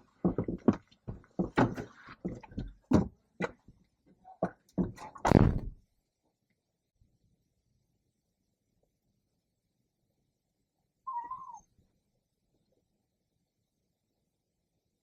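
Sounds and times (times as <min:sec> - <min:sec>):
door knocks and clicks: 0:04.8 - 0:05.8
door shutting thump: 0:05.3 - 0:05.8.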